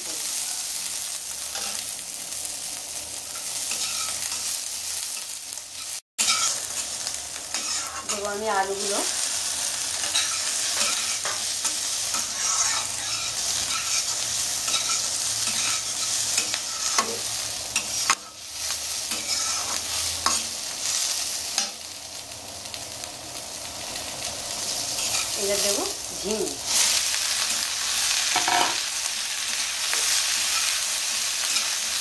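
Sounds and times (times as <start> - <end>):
potatoes and onion sizzling in oil: 0.0 - 32.0
metal spatula scraping a pan: 3.3 - 4.6, 5.2 - 8.4, 9.1 - 21.0, 24.7 - 25.8, 26.7 - 28.8.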